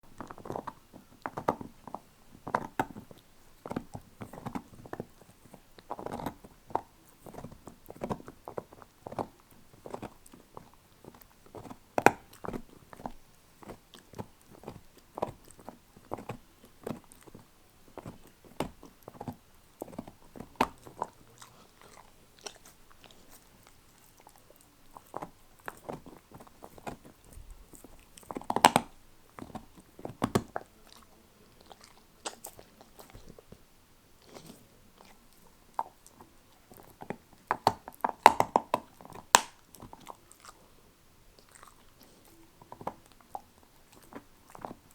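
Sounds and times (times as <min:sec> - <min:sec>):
teeth clicking on bone: 0:00.0 - 0:33.6, 0:34.2 - 0:40.6, 0:41.4 - 0:44.9
dog gnawing bone: 0:00.0 - 0:44.9.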